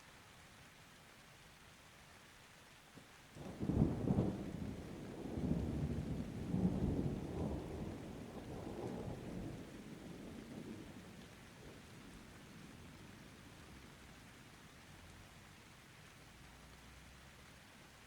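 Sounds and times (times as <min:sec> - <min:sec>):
light rain: 0:00.0 - 0:18.0
thunder rumbling: 0:03.5 - 0:11.8.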